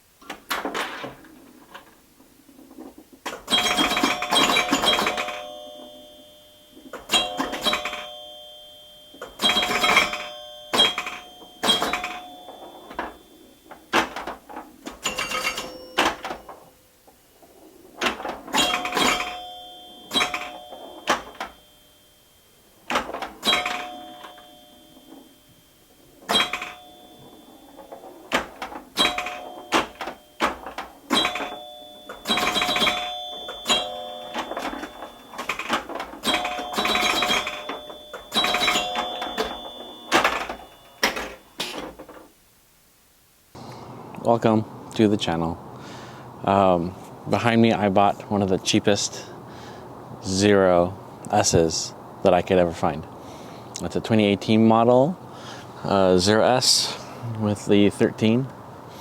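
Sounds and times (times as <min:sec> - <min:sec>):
bell-like chimes: 0:03.5 - 0:14.2, 0:15.0 - 0:16.6, 0:18.6 - 0:41.6.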